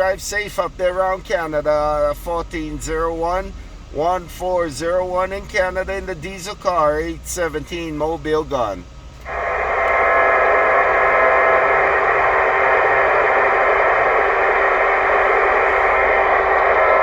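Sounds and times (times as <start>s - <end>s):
radio static hiss: 9.2s - 17.0s.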